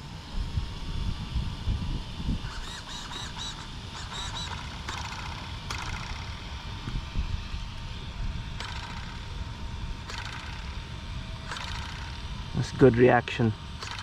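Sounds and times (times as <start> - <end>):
wind buffeting microphone: 0.1 - 12.9
short bird calls: 2.4 - 5.0
brief mechanical buzz: 2.4 - 7.0.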